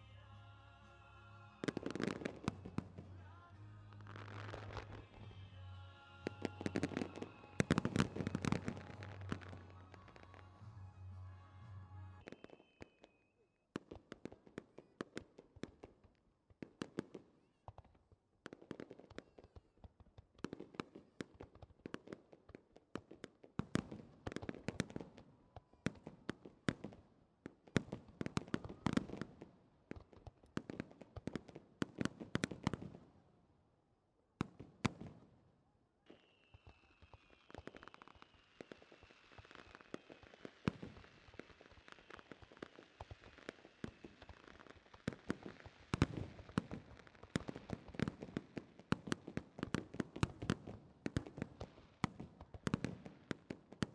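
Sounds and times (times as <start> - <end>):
fireworks bursts and bangs: 1.4 - 33.3, 34.4 - 35.4, 36.0 - 53.9
faint falling whistle: 12.2 - 13.5, 36.1 - 40.2
firework hiss: 36.1 - 46.1
firework pops: 36.1 - 53.9.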